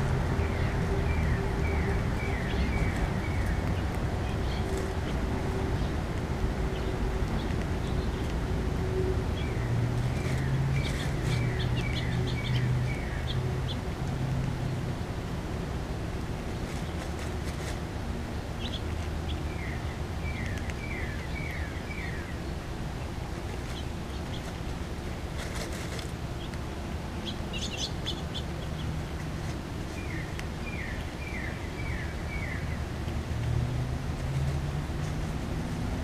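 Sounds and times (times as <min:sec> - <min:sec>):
low outdoor rumble: 0:00.0 - 0:36.0.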